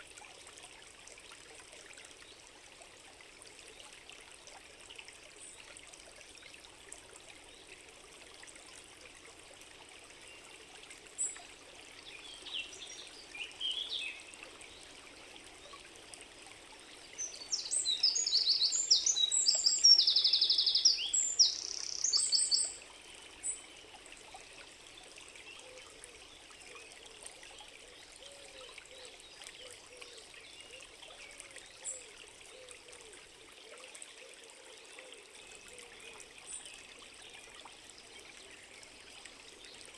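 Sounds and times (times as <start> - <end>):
stream trickling: 0.0 - 39.9
faint bird chirps: 17.2 - 22.8
songbird singing with trill: 17.2 - 22.8.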